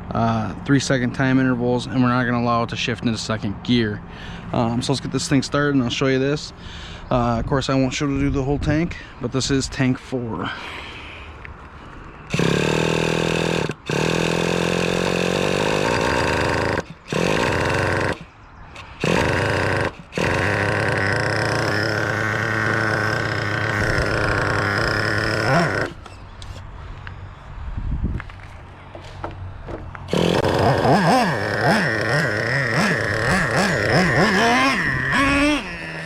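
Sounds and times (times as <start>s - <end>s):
electric starter spinning engine: 12.3s - 26.6s, 30.0s - 36.0s
small engine running: 12.3s - 26.6s, 30.0s - 36.0s.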